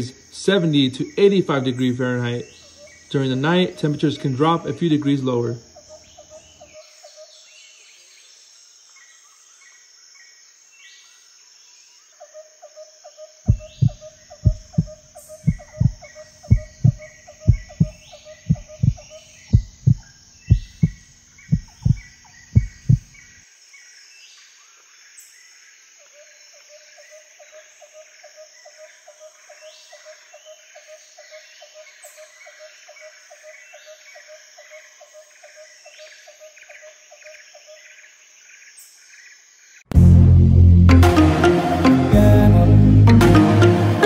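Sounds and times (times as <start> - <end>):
chirping animal calls: 2.3 - 7.3, 12.3 - 23.2
fast pulsing call: 13.5 - 23.1
deep heartbeat-like thumps: 13.5 - 23.2.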